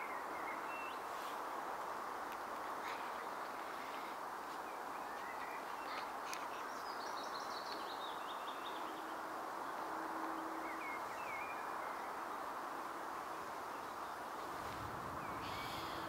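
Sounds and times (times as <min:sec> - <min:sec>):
bird singing: 0:04.7 - 0:12.5, 0:15.1 - 0:16.0.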